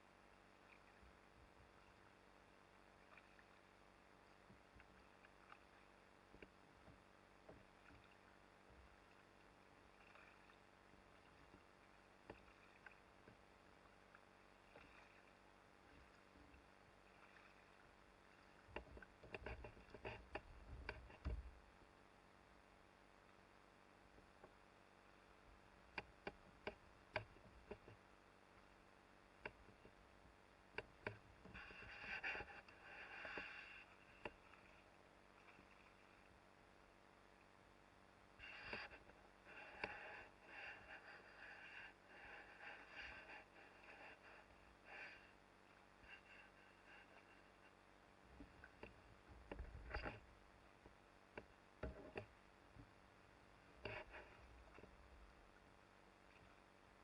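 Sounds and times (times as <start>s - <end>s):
faint knocks and taps: 18.7s - 21.6s, 25.9s - 28.1s, 48.4s - 52.9s.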